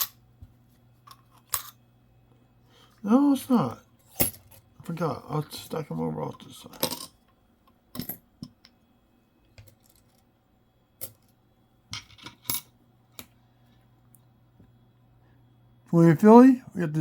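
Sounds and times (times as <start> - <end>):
coins clinking: 1.1 - 1.8.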